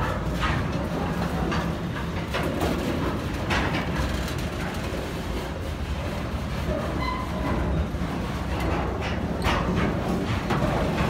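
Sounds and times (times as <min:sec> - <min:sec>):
wheels rumbling on rail: 0:00.0 - 0:11.0.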